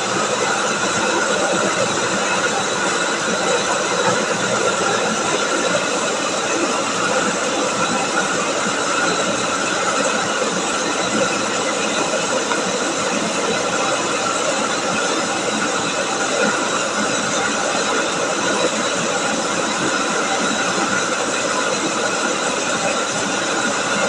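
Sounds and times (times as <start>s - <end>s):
milling machine whirring: 0.0s - 24.0s.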